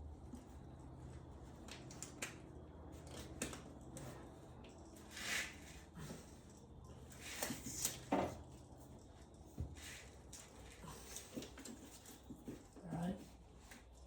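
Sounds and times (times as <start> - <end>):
handling rustles and knocks: 3.2 - 14.0.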